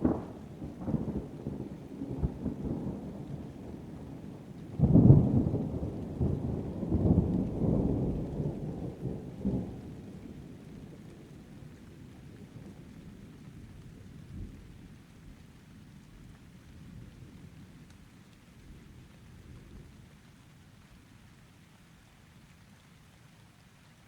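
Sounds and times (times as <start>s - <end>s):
thunder clap and rumbles: 0.0s - 11.4s
steady rain: 0.0s - 24.0s.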